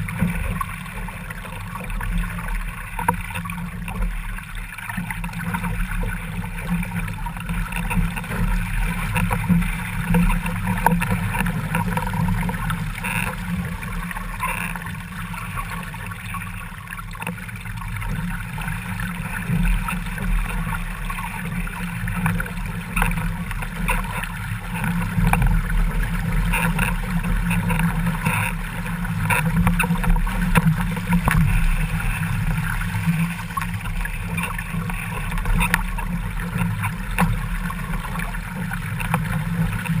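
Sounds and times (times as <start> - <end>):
water rushing past boat hull: 0.0 - 40.0.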